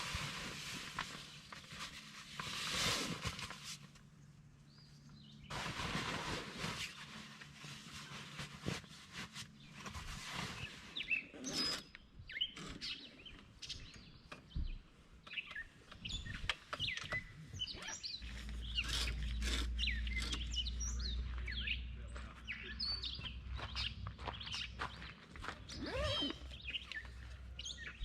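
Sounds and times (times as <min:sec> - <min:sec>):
small birds chirping: 0:04.2 - 0:05.8, 0:08.3 - 0:28.0.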